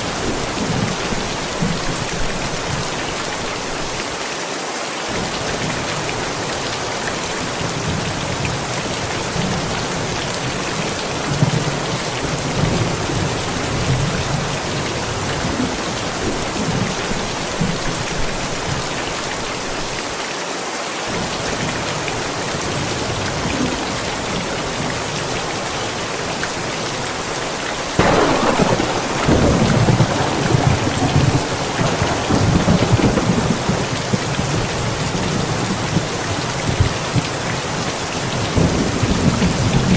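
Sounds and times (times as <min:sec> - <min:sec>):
steady rain: 0:00.0 - 0:39.9
loud thunderclap: 0:28.0 - 0:37.2
thunder rumbling: 0:28.0 - 0:39.9.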